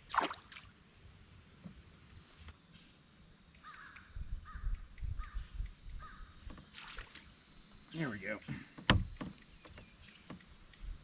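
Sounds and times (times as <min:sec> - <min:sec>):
high insect buzz: 0:01.7 - 0:11.0
crow cawing: 0:03.6 - 0:05.4, 0:06.0 - 0:06.4.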